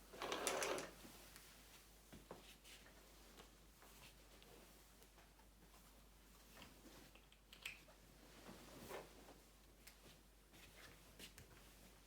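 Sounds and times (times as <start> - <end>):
faint small clicks: 6.6 - 7.9.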